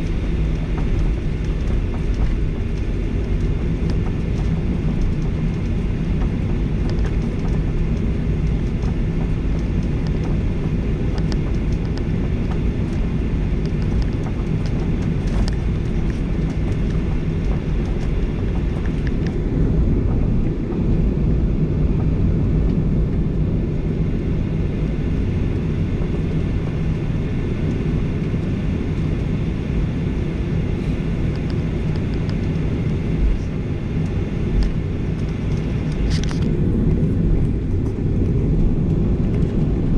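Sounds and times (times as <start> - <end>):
faint ticks and rattles: 0.0 - 20.8
airplane cabin engine rumble: 0.0 - 39.9.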